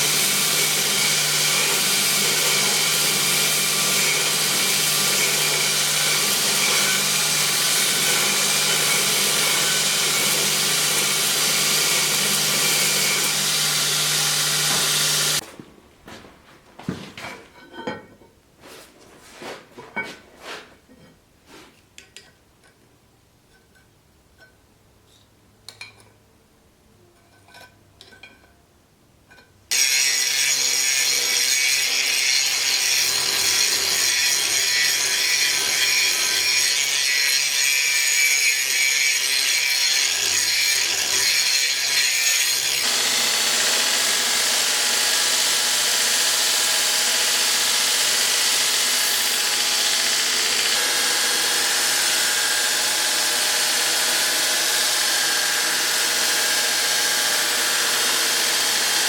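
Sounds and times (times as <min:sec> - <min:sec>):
power grinder on steel: 0:00.0 - 0:15.4, 0:29.7 - 0:59.0.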